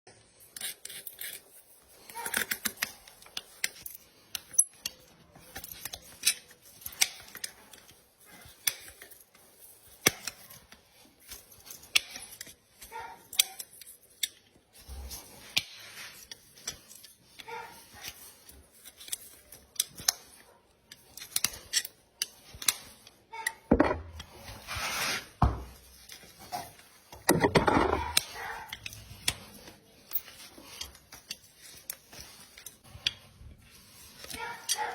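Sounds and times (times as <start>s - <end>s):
farrier tools clicking and snipping: 0.5s - 9.3s.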